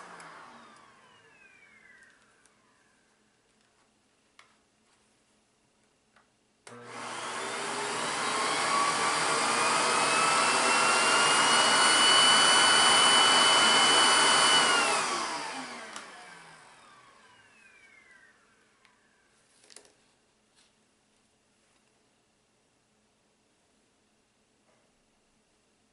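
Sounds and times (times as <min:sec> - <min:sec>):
vacuum cleaner motor whine: 0:00.0 - 0:03.1, 0:06.7 - 0:19.2.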